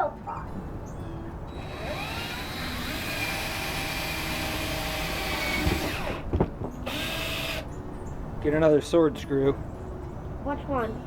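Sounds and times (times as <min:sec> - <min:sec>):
power drill whining: 0:01.5 - 0:07.7.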